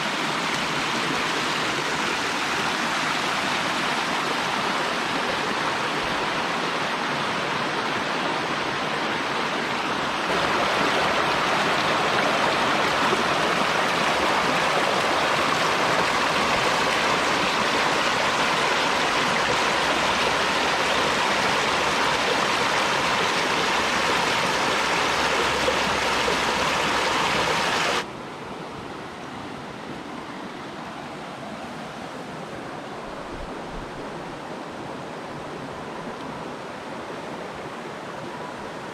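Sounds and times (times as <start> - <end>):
stream rushing over rocks: 0.0 - 28.2.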